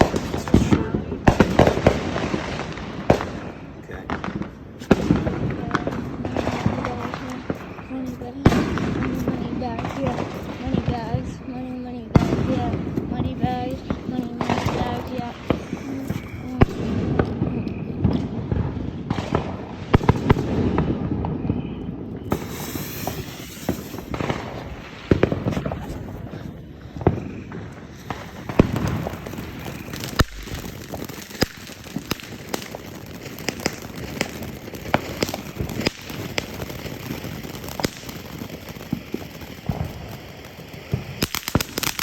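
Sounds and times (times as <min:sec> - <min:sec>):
fireworks bangs: 0:00.0 - 0:42.0
fireworks popping and crackling: 0:00.0 - 0:42.0
steady hiss: 0:22.3 - 0:26.4.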